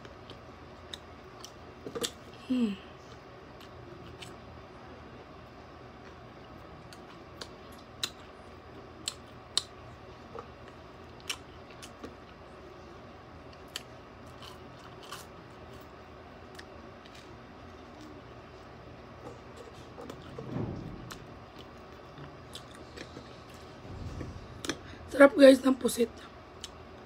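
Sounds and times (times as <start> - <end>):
low room hum: 0.0 - 27.0
person crunching food: 13.6 - 15.8.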